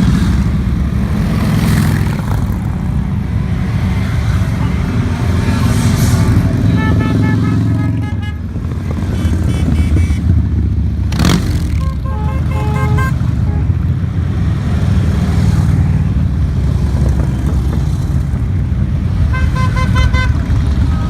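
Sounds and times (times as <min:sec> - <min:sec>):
motorcycle engines rumbling: 0:00.0 - 0:21.0
horn toots: 0:04.6 - 0:10.4, 0:11.5 - 0:13.9, 0:19.3 - 0:20.6.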